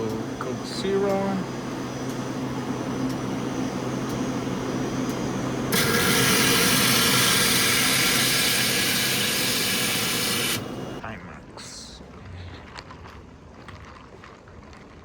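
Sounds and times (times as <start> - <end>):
dispenser low hum: 0.0 - 13.6
soda pouring hiss: 5.7 - 11.0.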